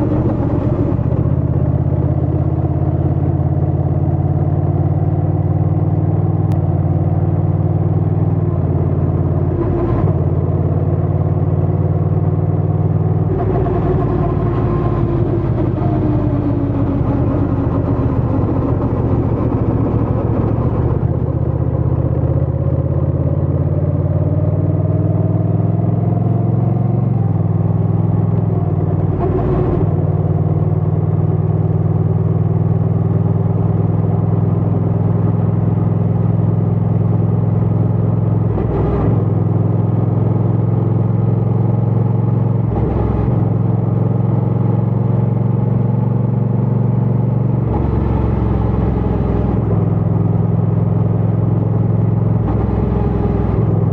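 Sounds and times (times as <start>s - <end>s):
motorcycle engine running: 0.0s - 38.6s.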